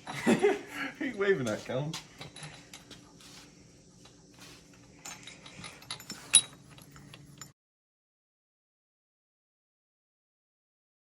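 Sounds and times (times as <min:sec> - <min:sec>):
tools clicking and tapping: 0:04.8 - 0:07.6.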